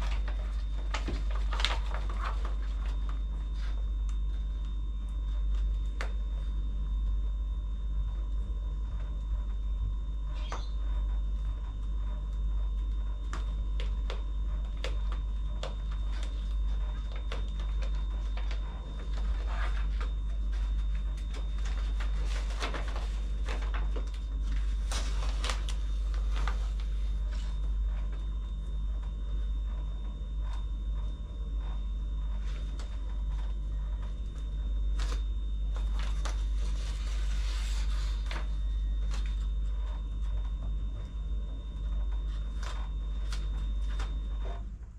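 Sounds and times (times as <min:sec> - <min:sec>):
low steady hum: 0:00.0 - 0:44.9
wallpaper crinkling and clicking: 0:00.0 - 0:44.9.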